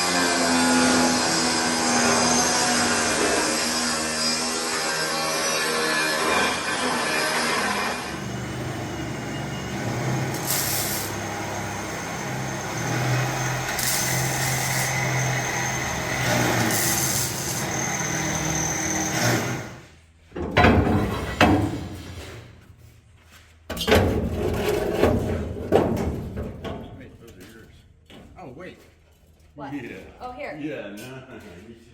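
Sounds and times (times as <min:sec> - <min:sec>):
power tool rasping sheet metal: 0:00.0 - 0:19.9
short hiss bursts: 0:10.4 - 0:11.1.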